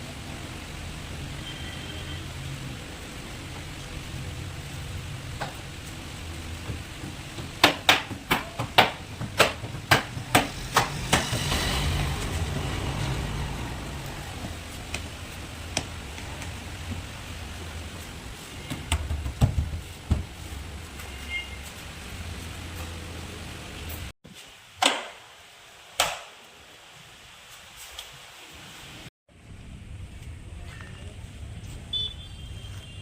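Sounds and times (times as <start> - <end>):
sharp knocks: 6.6 - 12.4, 18.7 - 20.4
hissing noise: 10.1 - 18.8.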